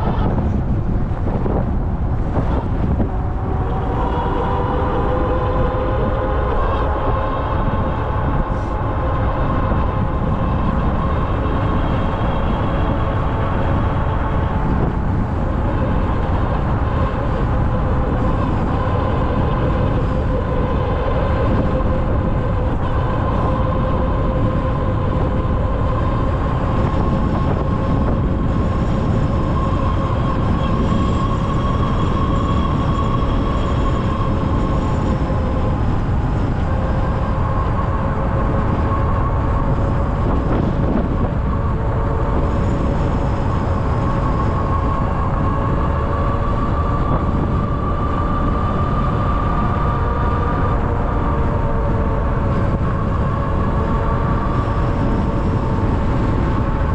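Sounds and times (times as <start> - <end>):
electric bike motor whine: 0.0 - 56.9
low rumble: 0.0 - 56.9.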